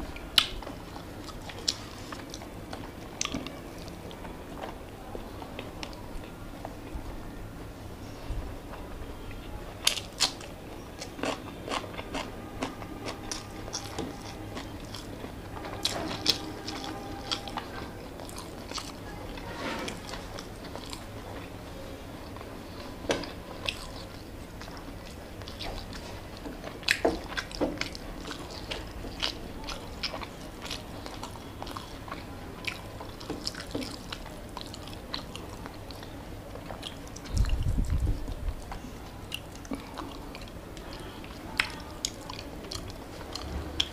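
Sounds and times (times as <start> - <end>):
chewing and biting food: 9.8 - 21.6, 22.2 - 43.9.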